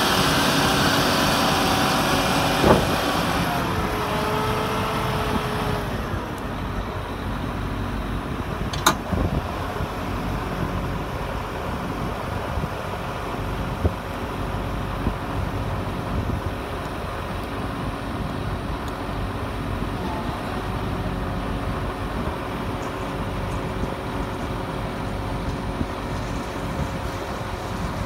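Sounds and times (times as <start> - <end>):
diesel engines running: 0.0 - 28.0
sharp click: 8.7 - 9.0.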